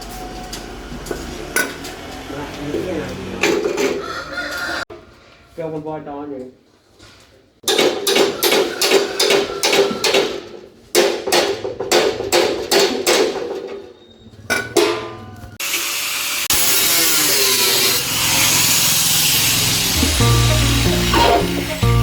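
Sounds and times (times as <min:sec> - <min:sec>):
power tool running: 0:00.1 - 0:03.7, 0:15.6 - 0:22.0
hammer striking metal: 0:07.6 - 0:10.4, 0:11.0 - 0:13.8
music: 0:19.8 - 0:22.0.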